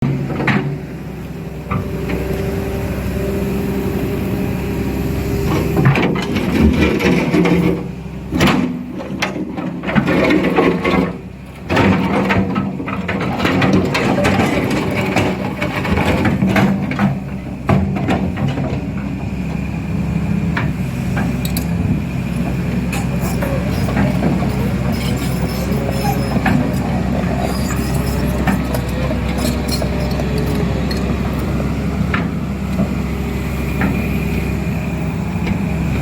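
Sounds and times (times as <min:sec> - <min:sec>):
excavator diesel engine running: 0:00.0 - 0:36.0
metallic clanks and knocks: 0:22.9 - 0:31.2.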